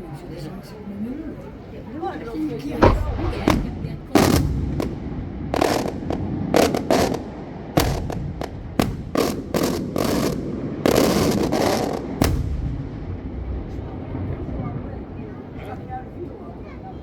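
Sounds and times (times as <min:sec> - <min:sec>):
fireworks bangs: 0:02.7 - 0:15.4
fireworks crackling: 0:02.7 - 0:15.4.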